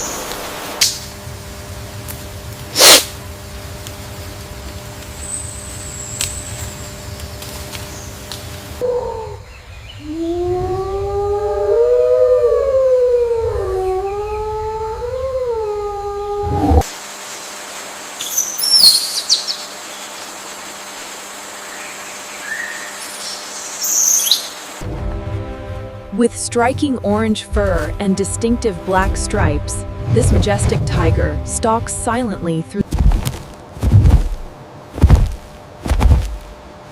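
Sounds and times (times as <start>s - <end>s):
steady hiss: 0.0s - 8.8s
animal howling: 8.8s - 16.9s
birds chirping: 21.7s - 24.7s
heavy footfalls thudding: 32.9s - 36.5s.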